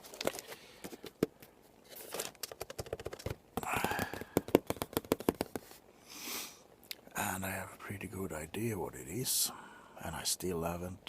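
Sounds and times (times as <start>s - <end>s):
hands tapping a package: 0.0s - 5.8s
package rustling: 0.0s - 5.8s.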